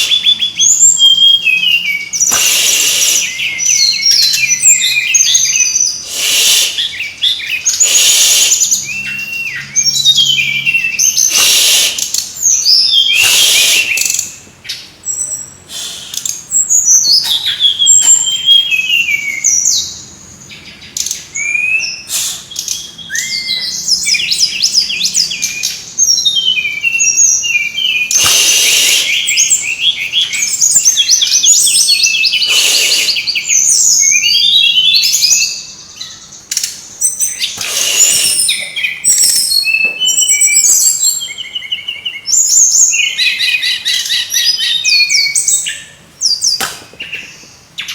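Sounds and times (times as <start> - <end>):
flycatcher chirps and trills: 0.0 - 14.4, 22.0 - 41.8
short noisy bursts: 2.2 - 3.5, 6.0 - 6.9, 7.7 - 8.9, 11.2 - 12.1, 13.1 - 14.2, 22.1 - 22.6, 28.1 - 29.6, 32.4 - 33.5, 37.6 - 38.5.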